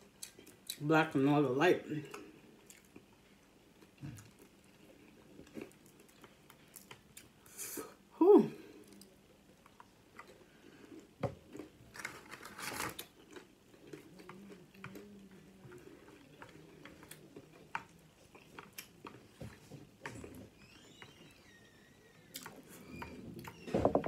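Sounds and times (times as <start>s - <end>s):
faint low hum: 0.0s - 24.0s
crunchy chewing: 8.9s - 20.4s.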